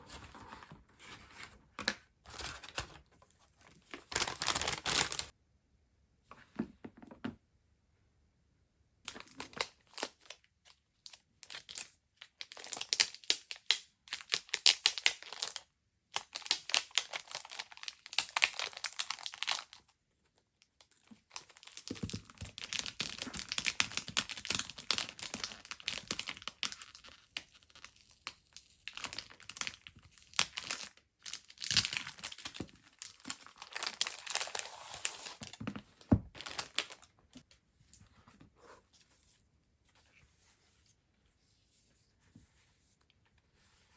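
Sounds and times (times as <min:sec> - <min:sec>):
packaging crinkling: 0:03.7 - 0:05.3, 0:28.9 - 0:35.6, 0:36.3 - 0:37.4.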